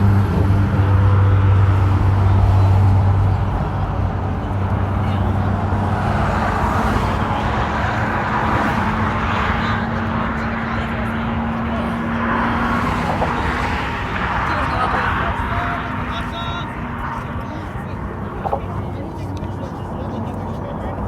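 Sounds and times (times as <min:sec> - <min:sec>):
traffic rushing: 0:00.0 - 0:21.0
vehicle engine hum: 0:00.0 - 0:21.0.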